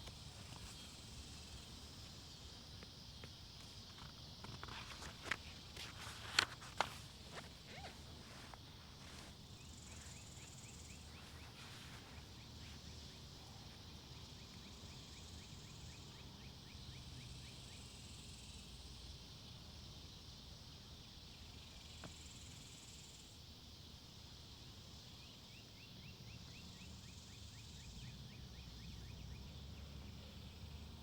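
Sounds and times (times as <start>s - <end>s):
rapid faint chirps: 0.0s - 15.8s
insects buzzing: 0.0s - 31.0s.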